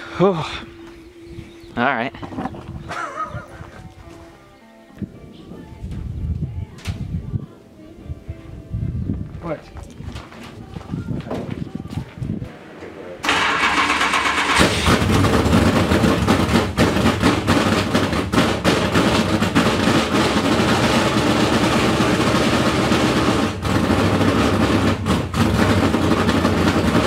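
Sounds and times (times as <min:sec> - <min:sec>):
race car engine running rough: 0:13.2 - 0:27.0.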